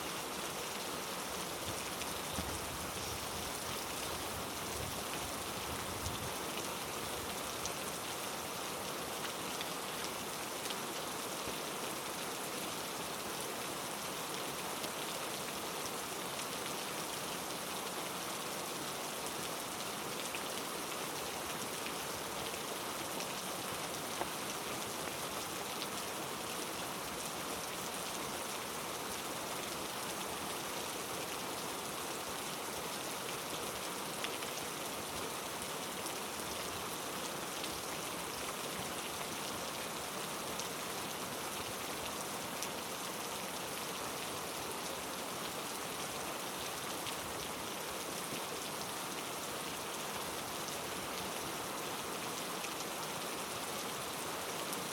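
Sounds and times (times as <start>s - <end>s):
heavy rain falling: 0.1s - 11.2s.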